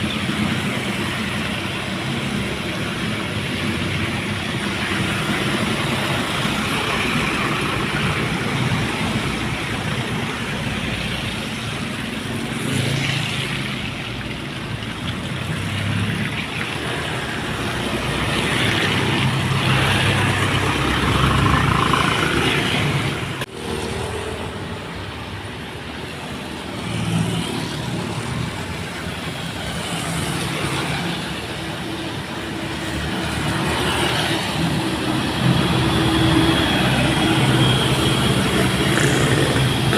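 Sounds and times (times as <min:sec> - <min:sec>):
dump trucks driving past: 0:00.0 - 0:39.9
tyre noise on wet road: 0:00.0 - 0:39.9.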